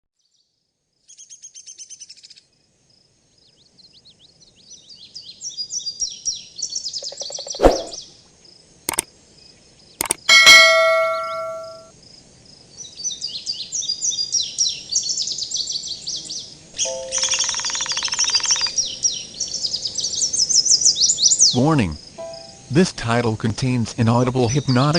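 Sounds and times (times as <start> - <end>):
sharp knocks: 10.0 - 11.8
struck bell ringing: 10.0 - 11.9
small birds chirping: 15.7 - 20.3.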